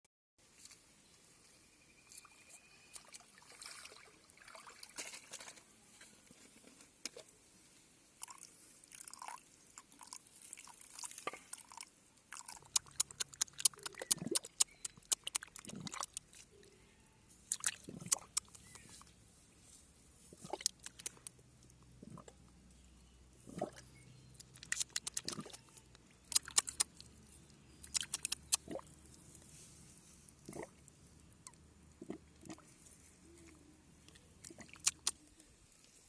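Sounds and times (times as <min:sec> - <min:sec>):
mud squelching and splashing: 0:02.1 - 0:07.4, 0:08.2 - 0:16.8, 0:17.4 - 0:19.2, 0:20.2 - 0:22.4, 0:23.4 - 0:36.0
sharp clicks and crackles: 0:12.4 - 0:16.4, 0:17.5 - 0:19.0, 0:20.4 - 0:21.4, 0:24.4 - 0:27.1, 0:27.8 - 0:28.8, 0:34.1 - 0:35.2.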